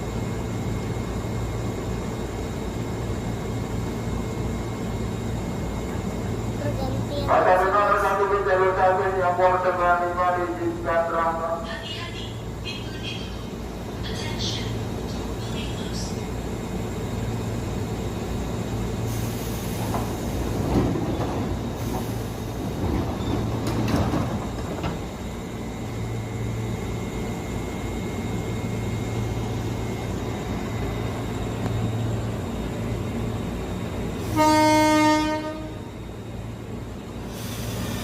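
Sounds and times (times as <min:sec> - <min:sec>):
electric train humming: 0:00.0 - 0:38.0
train rumbling: 0:00.0 - 0:38.0
train horn blast: 0:34.2 - 0:35.8.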